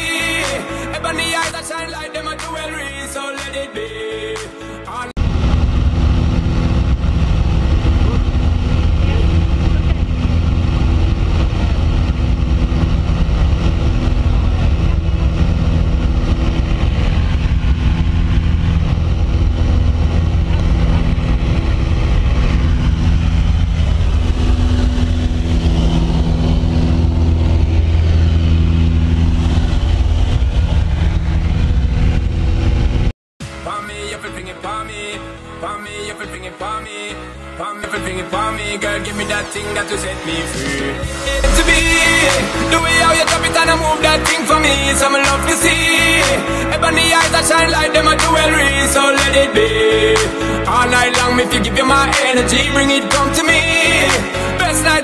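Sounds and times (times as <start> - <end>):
propeller aircraft engine drone: 5.2 - 33.6, 40.6 - 47.4.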